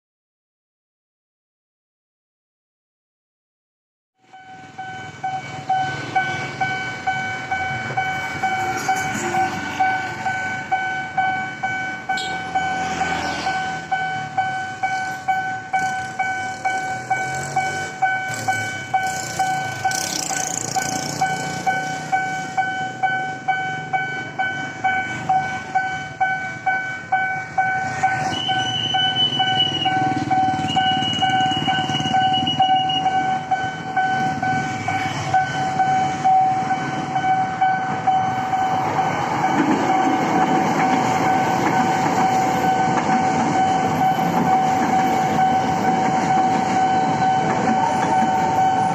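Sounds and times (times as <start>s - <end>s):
level crossing warning bell: 4.2s - 48.9s
higher electronic tone: 4.3s - 40.8s.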